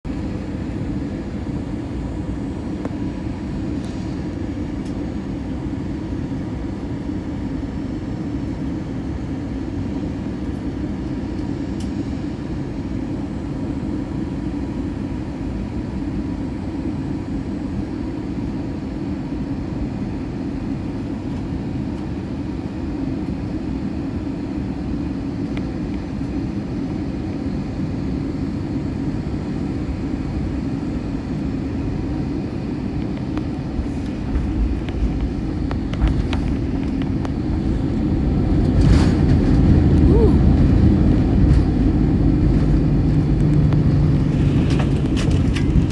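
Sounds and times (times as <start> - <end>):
aircraft cabin engine and airflow rush: 0.0 - 45.9.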